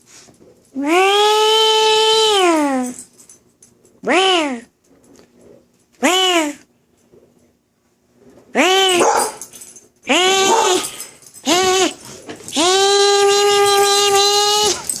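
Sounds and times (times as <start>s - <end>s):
dog howling: 10.1s - 15.0s.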